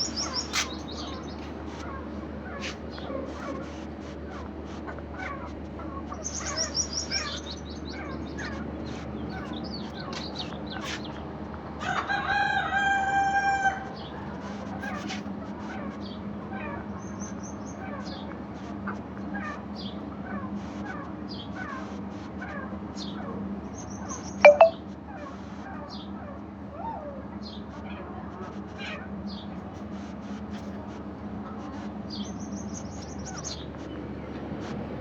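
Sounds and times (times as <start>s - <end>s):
small birds chirping: 0.0s - 2.0s
rooster crowing: 11.8s - 13.8s.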